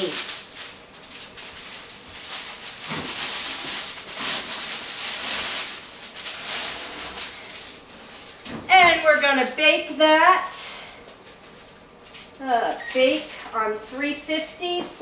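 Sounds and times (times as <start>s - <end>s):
aluminum foil pan crinkling: 0.0s - 9.6s, 11.2s - 14.0s.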